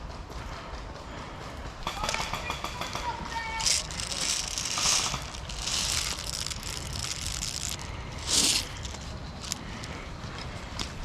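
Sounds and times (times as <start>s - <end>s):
footsteps on dry vegetation: 3.5s - 11.0s.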